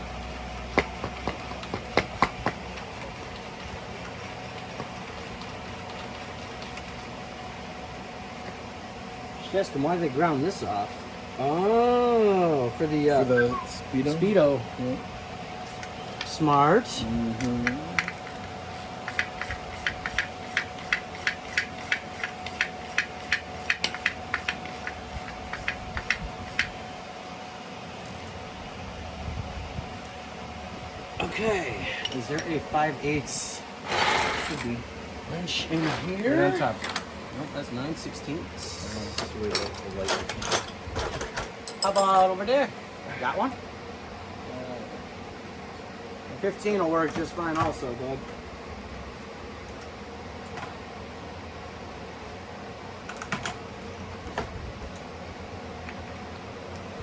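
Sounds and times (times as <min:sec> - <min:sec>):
low shop hum: 0:00.0 - 0:57.0
hand ratchet clicking: 0:17.6 - 0:26.7.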